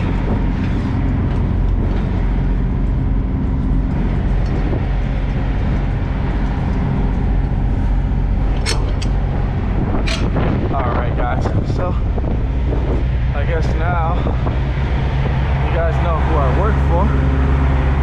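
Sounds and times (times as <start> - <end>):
diesel truck engine idling: 0.0 - 18.0.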